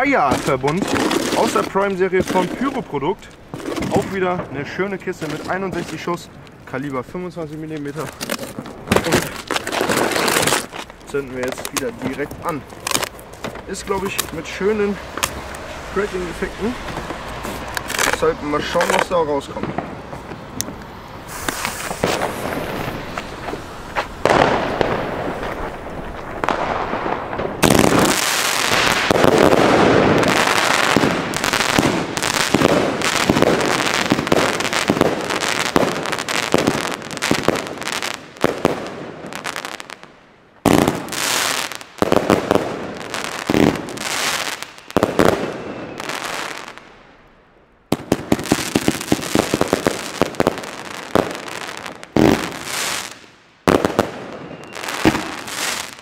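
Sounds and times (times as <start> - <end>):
firework crackling: 0.0 - 47.3, 47.9 - 56.0
firework launch thumps and bursts: 21.3 - 39.7.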